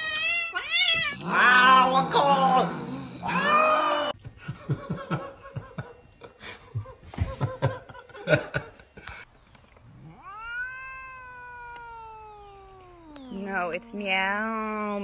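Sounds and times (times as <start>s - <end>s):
cat meowing: 0.0s - 1.9s, 10.0s - 14.2s.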